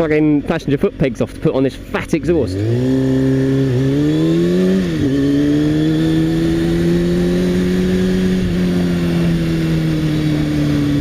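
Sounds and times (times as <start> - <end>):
gear change: 2.2 - 11.0
motorcycle engine revving: 2.2 - 11.0.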